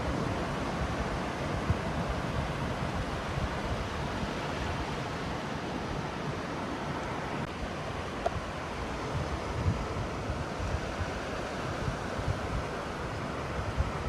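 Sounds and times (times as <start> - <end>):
ocean surf washing: 0.0 - 14.0.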